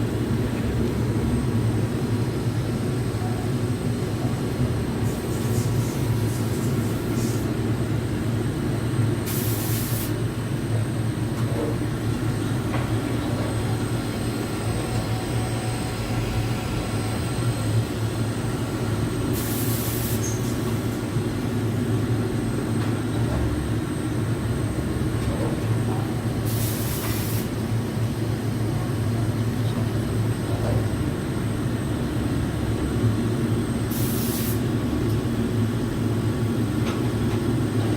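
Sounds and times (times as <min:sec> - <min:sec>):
machine low mechanical hum: 0:00.0 - 0:37.9.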